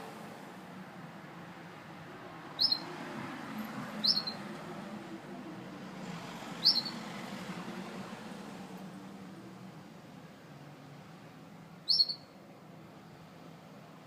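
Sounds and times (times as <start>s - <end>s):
canary chirping: 2.6s - 2.9s, 4.0s - 4.5s, 6.6s - 7.0s, 11.8s - 12.4s.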